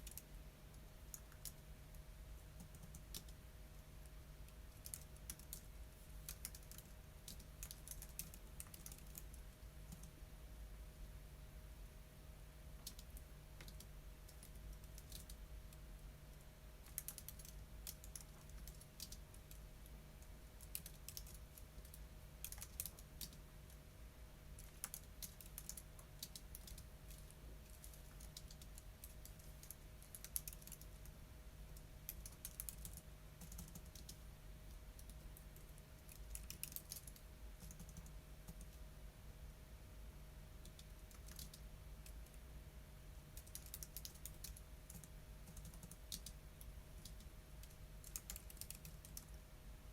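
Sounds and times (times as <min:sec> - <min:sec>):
keyboard typing: 0:00.0 - 0:00.3, 0:02.5 - 0:03.4, 0:04.5 - 0:10.2, 0:12.8 - 0:15.8, 0:16.8 - 0:19.6, 0:20.2 - 0:23.8, 0:24.6 - 0:38.8, 0:40.6 - 0:42.4, 0:43.4 - 0:49.4
faint steady hum: 0:00.0 - 0:49.9.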